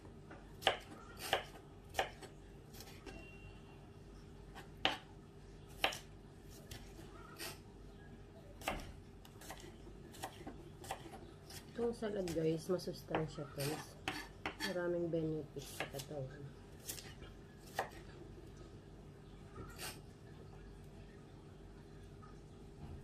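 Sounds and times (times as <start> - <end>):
knife chopping on wooden board: 0.6 - 3.0, 4.6 - 5.1, 5.8 - 6.1, 8.6 - 11.7, 13.1 - 14.7.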